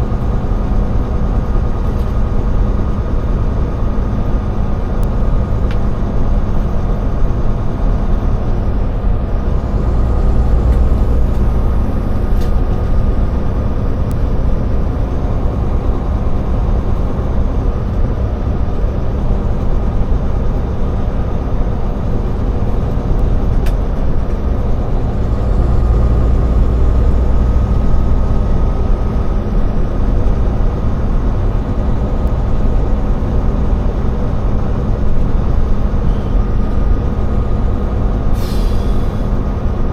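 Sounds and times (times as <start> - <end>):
road rumble: 0.0 - 39.9
truck engine drone: 0.0 - 39.9.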